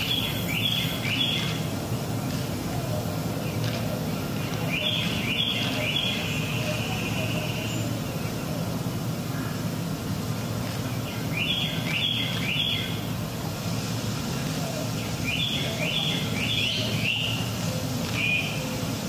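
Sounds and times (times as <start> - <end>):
bird chirping: 0.0 - 1.7, 3.4 - 8.6, 10.8 - 13.0, 14.8 - 19.0.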